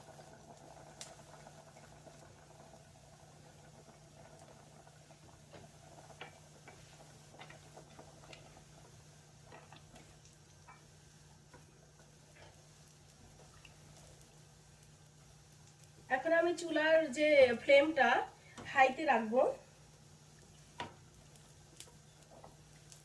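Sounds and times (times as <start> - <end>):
clicks and taps at cooking pot: 20.8 - 21.0.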